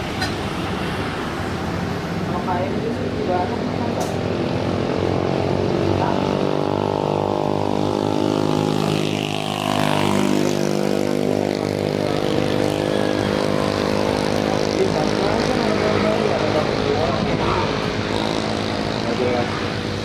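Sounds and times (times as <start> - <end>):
jet airliner engines droning: 0.0 - 20.0.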